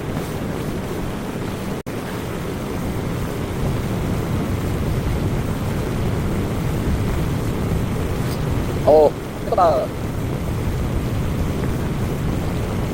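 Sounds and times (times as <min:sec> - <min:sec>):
boat engine running: 0:00.0 - 0:12.9
rushing wind and water: 0:00.0 - 0:12.9.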